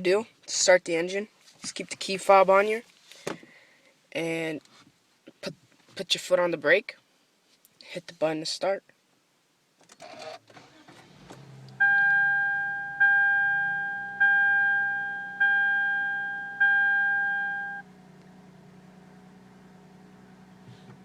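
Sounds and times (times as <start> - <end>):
car engine starting and idling: 9.8 - 21.0
car warning chime: 11.8 - 17.9.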